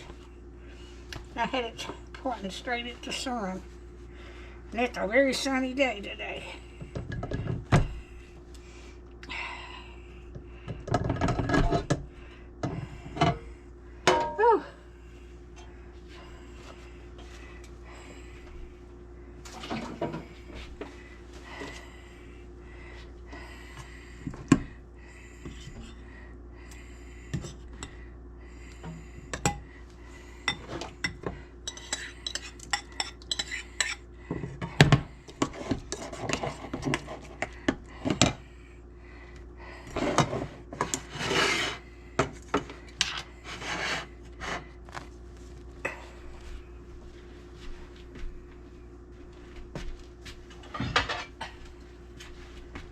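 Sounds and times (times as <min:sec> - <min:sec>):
faint steady hum: 0:00.0 - 0:52.9
scraping and rubbing: 0:40.0 - 0:41.8, 0:43.4 - 0:44.7
dishes clinking and knocking: 0:50.8 - 0:51.6.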